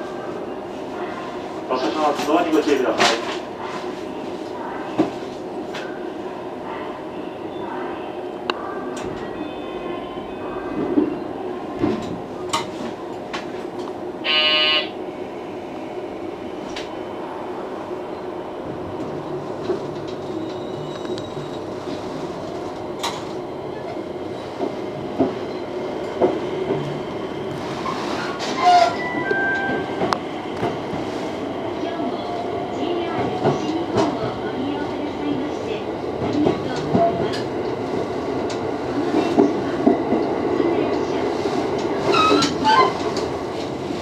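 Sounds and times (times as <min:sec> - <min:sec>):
train horn blast: 0:14.2 - 0:15.0.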